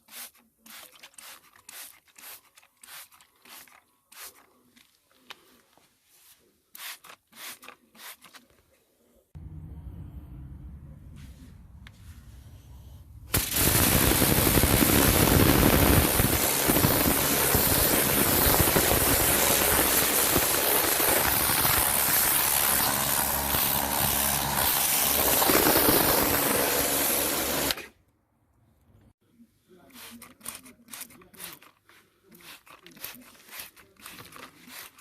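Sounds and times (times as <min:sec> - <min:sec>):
pressure washer jet hissing: 0:13.3 - 0:27.8.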